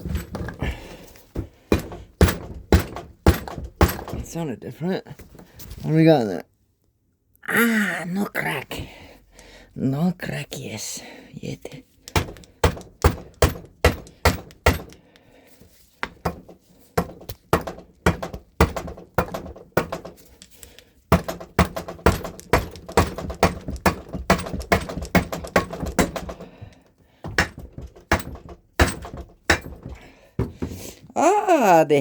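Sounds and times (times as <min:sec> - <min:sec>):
hammer knocking on metal: 0:01.4 - 0:04.4, 0:12.2 - 0:15.0, 0:16.0 - 0:20.2, 0:21.1 - 0:26.5, 0:27.2 - 0:30.8.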